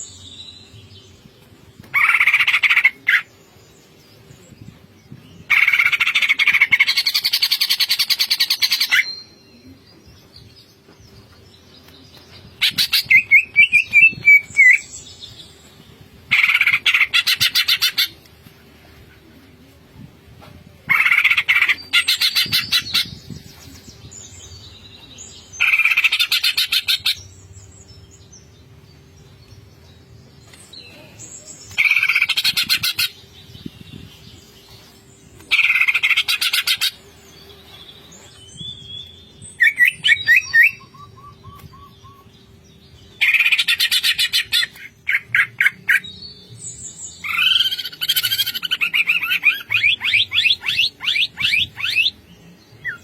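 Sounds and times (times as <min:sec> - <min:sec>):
bird singing stuttering notes: 0:47.2 - 0:52.2.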